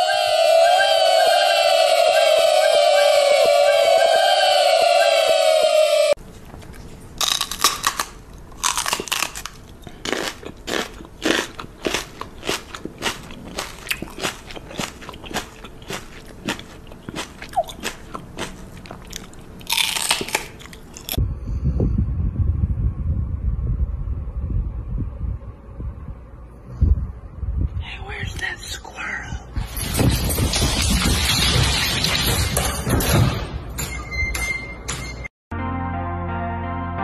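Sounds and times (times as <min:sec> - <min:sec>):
animal chewing crunchy food: 0:06.3 - 0:21.2
low wind rumble on microphone: 0:21.2 - 0:28.6.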